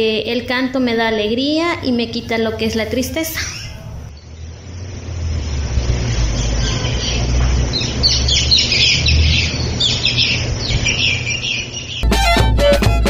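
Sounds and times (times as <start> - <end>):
steady low rumble: 0.0 - 11.8
birds chattering: 5.8 - 12.0.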